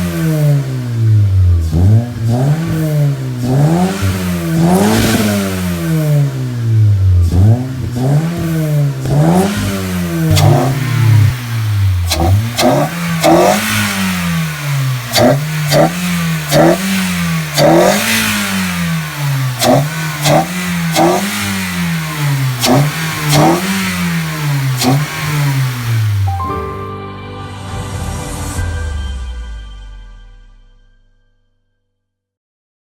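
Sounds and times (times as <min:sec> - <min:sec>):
car engine revving: 0:00.0 - 0:26.4
sharp exhaust cracks: 0:03.4 - 0:26.3.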